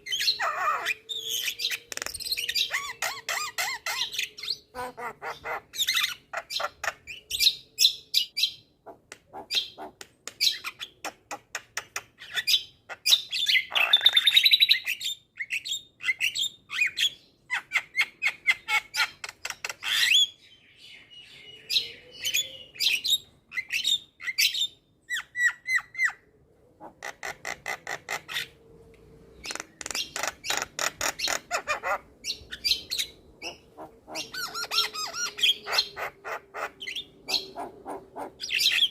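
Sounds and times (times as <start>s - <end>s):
bird clicking and squawking: 8.9s - 12.2s.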